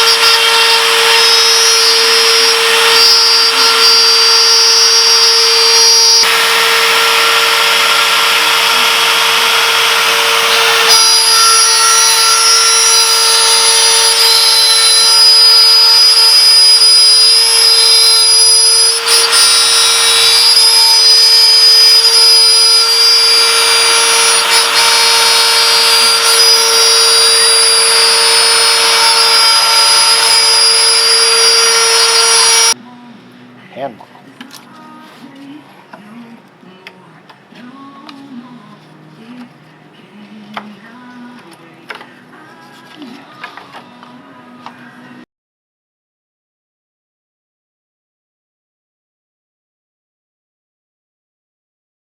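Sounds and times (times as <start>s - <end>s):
router spindle whining: 0.0s - 32.8s.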